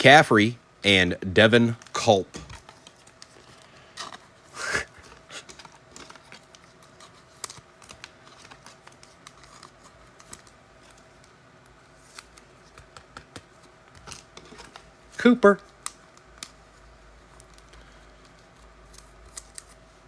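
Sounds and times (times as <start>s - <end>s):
cards clicking and snapping: 5.1s - 11.4s, 12.1s - 14.9s, 15.8s - 16.6s, 17.4s - 19.8s.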